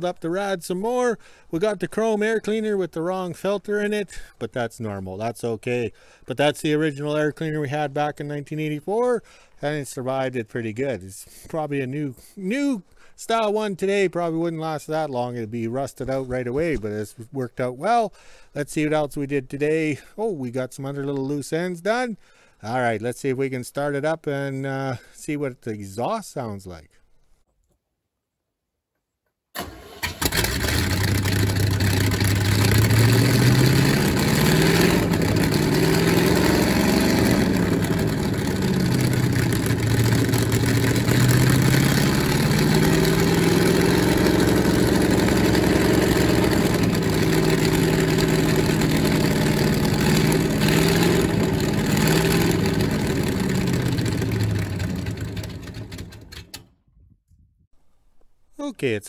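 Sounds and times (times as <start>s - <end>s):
car engine starting and revving: 29.6s - 56.5s.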